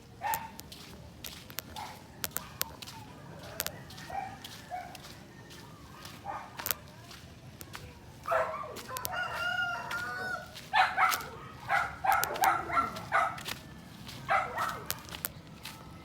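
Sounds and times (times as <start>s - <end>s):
rooster crowing: 3.5s - 6.1s, 8.8s - 10.7s.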